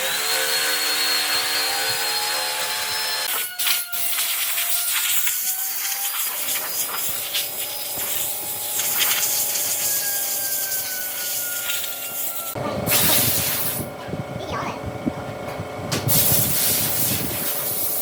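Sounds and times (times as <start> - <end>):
power sander on wood: 0.0 - 13.9.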